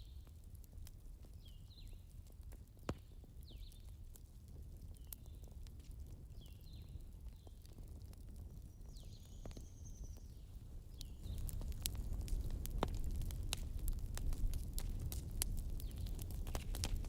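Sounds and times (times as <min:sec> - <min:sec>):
campfire crackling and popping: 0:00.0 - 0:17.0
low rumble of burning: 0:00.0 - 0:17.0.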